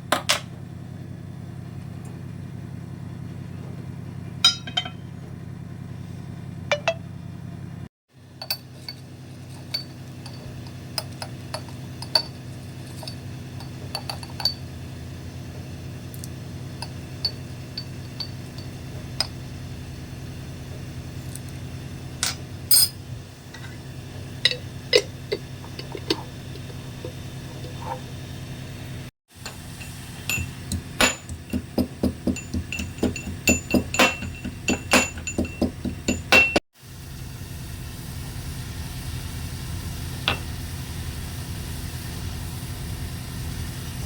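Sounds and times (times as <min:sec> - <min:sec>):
steady low hum: 0:00.8 - 0:44.0
dishes and utensils clinking: 0:04.4 - 0:05.1, 0:06.7 - 0:07.0, 0:24.5 - 0:28.0, 0:29.5 - 0:36.6.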